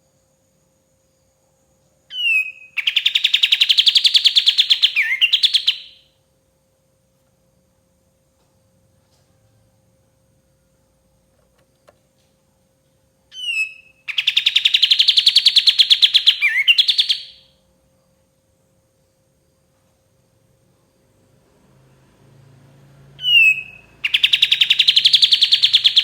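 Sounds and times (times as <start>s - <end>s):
faint steady hum: 0.0s - 26.0s
bird singing trills: 2.1s - 6.1s, 13.3s - 17.5s, 23.2s - 26.0s.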